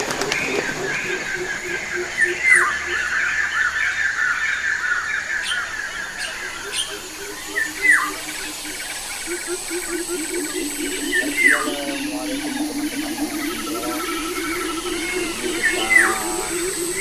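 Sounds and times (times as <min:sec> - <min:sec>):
fast bird chattering: 0:00.0 - 0:03.8, 0:05.4 - 0:17.0
low pulsing notes: 0:06.8 - 0:17.0.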